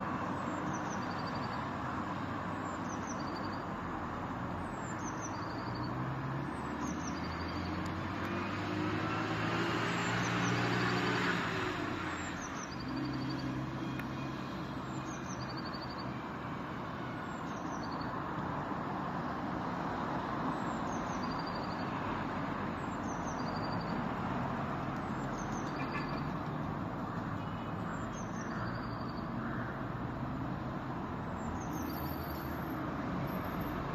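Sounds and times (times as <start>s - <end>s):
city traffic noise: 0.0s - 33.9s
bird song with trill: 0.6s - 1.6s, 2.7s - 3.6s, 4.8s - 6.0s, 15.0s - 16.1s, 17.4s - 18.1s, 20.6s - 22.0s, 22.9s - 24.1s, 25.1s - 26.5s, 27.5s - 29.4s, 31.4s - 32.4s
vehicle engine passing by: 6.0s - 13.7s.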